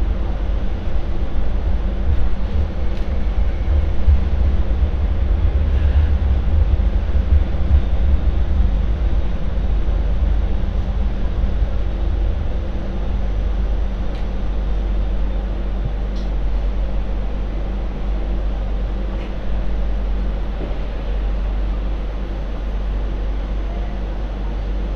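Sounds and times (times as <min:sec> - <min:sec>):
faint hum: 0:00.0 - 0:24.9
light rail vehicle rumbling on track: 0:00.0 - 0:24.9.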